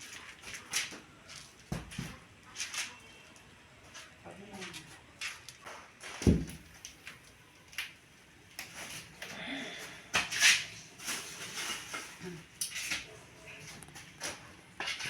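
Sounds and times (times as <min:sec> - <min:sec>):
dull thump: 0:06.2 - 0:06.6.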